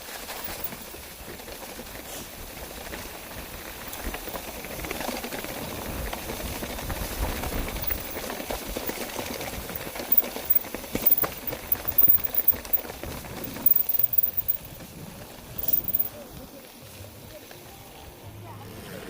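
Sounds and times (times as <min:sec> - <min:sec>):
footsteps crunching on trail: 0:06.1 - 0:16.1.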